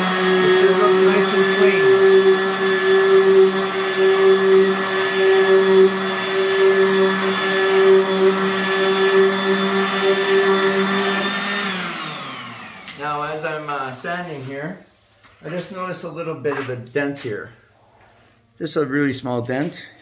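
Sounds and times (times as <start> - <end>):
orbital sander sanding wood: 0.0 - 14.8.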